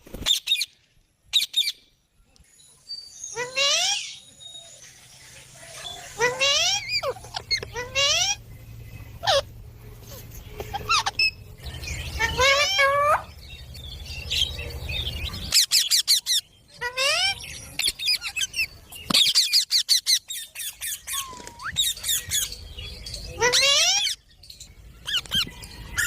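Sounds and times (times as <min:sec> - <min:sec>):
parrot calling and squawking: 0:03.3 - 0:04.3, 0:05.8 - 0:08.4, 0:09.2 - 0:09.5, 0:10.6 - 0:11.4, 0:12.0 - 0:13.4, 0:15.4 - 0:22.6, 0:23.4 - 0:24.2.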